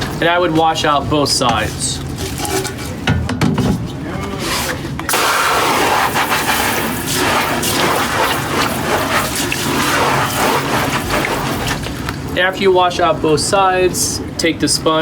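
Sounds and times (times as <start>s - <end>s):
hose water spraying onto mesh: 4.5s - 12.1s.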